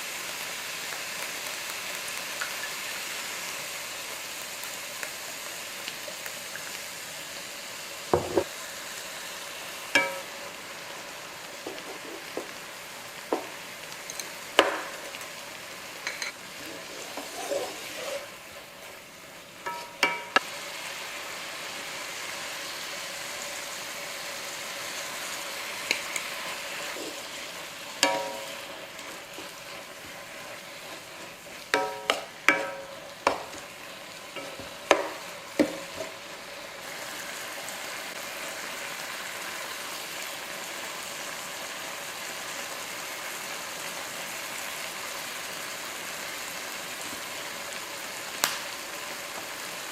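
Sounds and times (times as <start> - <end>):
food sizzling in a pan: 0.0 - 49.9
utensil clinking against pan: 19.7 - 20.4, 31.8 - 33.4.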